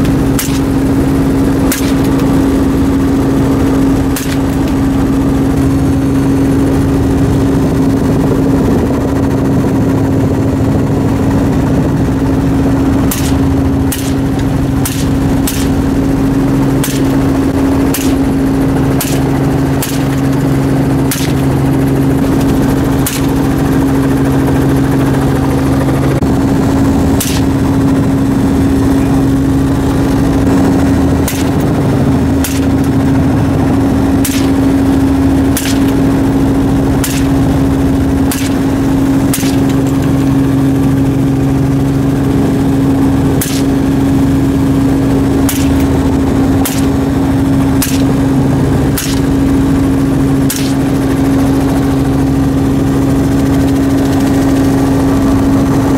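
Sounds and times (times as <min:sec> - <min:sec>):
helicopter engine and rotor: 0:00.0 - 0:55.9
single gunshots: 0:47.8 - 0:48.2.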